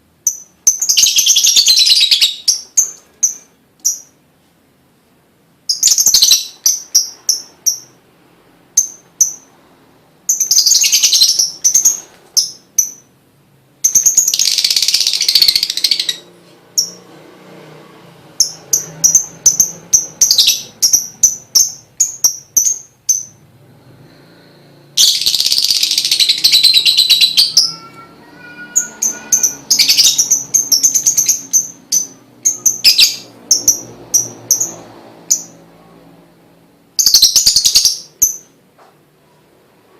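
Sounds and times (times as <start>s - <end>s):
lovebird chirping and chattering: 0.2s - 4.2s, 5.7s - 8.0s, 8.7s - 9.5s, 10.3s - 13.1s, 13.8s - 17.0s, 18.4s - 23.4s, 25.0s - 35.6s, 37.0s - 38.6s.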